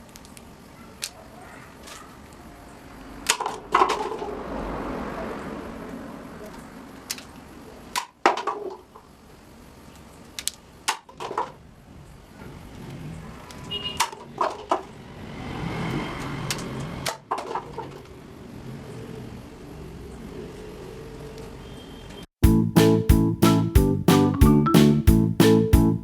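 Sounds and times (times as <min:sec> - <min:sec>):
low steady background noise: 0:00.0 - 0:15.2.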